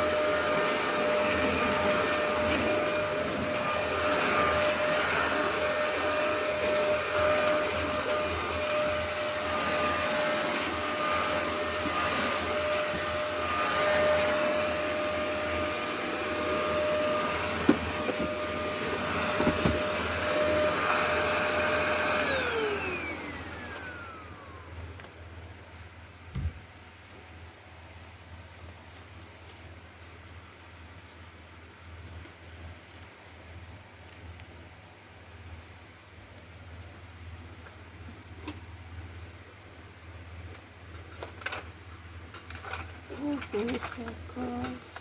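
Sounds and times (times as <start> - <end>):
vacuum cleaner motor whine: 0.0 - 27.6, 42.6 - 45.0.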